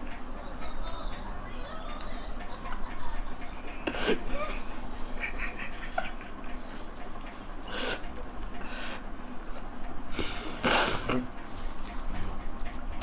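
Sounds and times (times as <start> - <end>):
people eating noisily: 0.0 - 13.0
steady low hum: 0.0 - 13.0.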